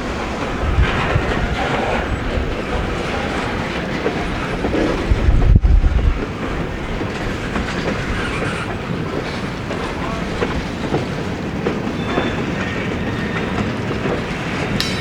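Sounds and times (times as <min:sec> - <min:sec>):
train wheels clattering on rails: 0:00.0 - 0:15.0.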